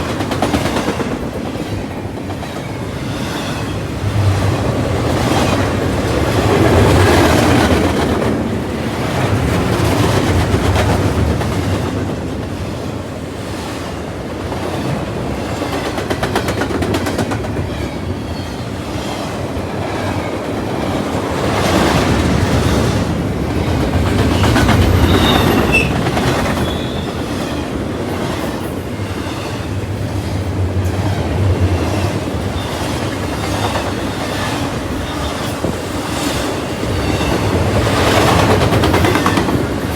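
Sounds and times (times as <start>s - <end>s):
train rumble: 0.0s - 39.9s
train wheels clicking over rail joints: 14.5s - 17.8s, 19.0s - 39.9s
high wheel squeal: 24.9s - 27.7s.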